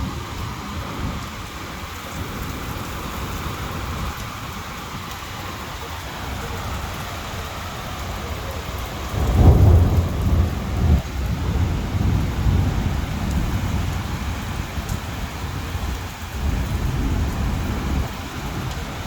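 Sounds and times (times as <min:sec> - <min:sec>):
heavy rain: 0:00.0 - 0:19.0
thunder rumbling: 0:06.2 - 0:19.0.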